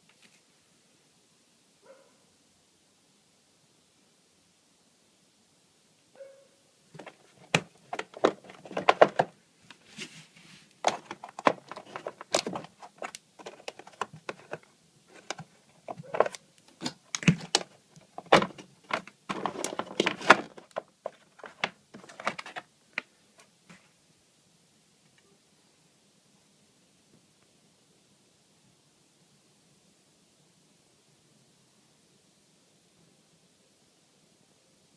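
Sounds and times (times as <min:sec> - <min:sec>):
hard parts clicking and rattling: 0:07.0 - 0:09.3, 0:10.8 - 0:22.6.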